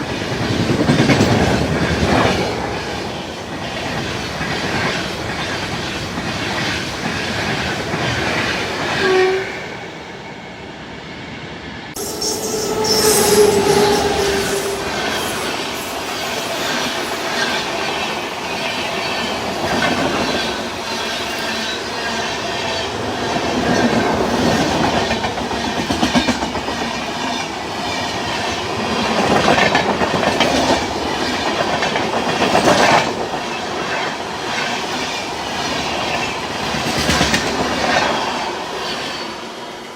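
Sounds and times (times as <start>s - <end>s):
train wheels clattering: 13.3s - 38.2s.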